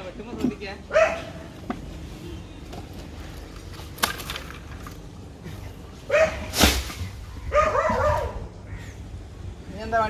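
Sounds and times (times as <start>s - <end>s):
dog barking: 0.9s - 1.3s, 6.1s - 6.4s, 7.5s - 8.4s.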